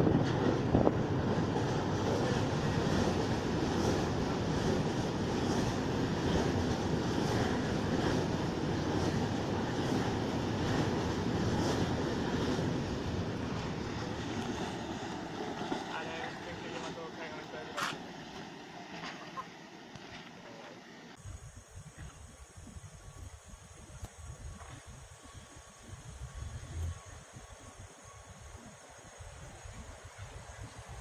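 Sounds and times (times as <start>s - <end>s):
freight train rumbling past: 0.0s - 21.2s.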